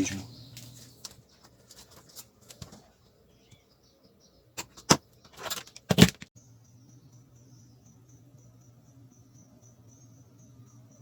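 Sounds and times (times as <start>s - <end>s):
faint steady hum: 6.4s - 11.0s.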